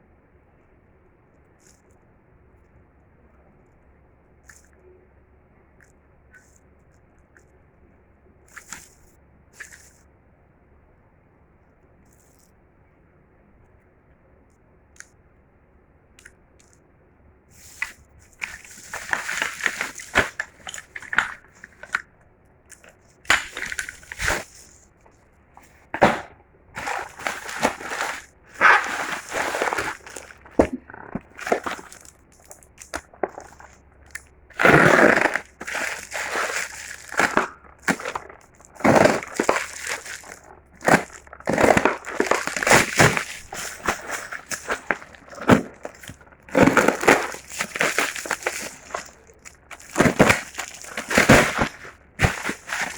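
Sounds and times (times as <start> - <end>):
packaging crinkling and tearing: 17.6 - 22.0, 22.7 - 24.8, 25.6 - 52.9.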